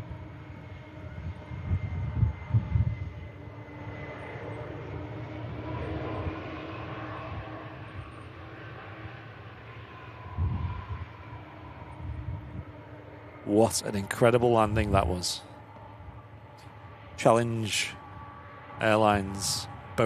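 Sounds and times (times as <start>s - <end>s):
wind buffeting microphone: 0.0s - 9.2s, 9.8s - 16.3s
jet engines whining: 0.0s - 20.0s.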